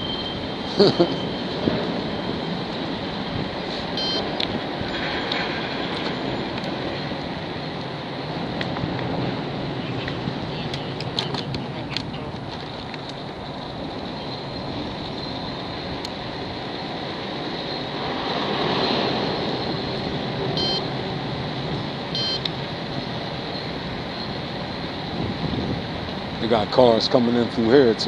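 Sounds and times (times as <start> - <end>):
short high beeps: 0.0 - 1.5, 4.0 - 4.3, 20.6 - 20.9, 22.2 - 22.5
traffic noise: 0.0 - 28.0
vehicle passing close: 13.2 - 26.6.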